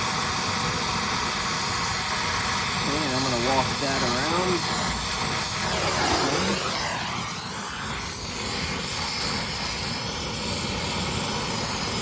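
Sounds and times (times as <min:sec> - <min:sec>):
gas torch flame hissing: 0:00.0 - 0:12.0.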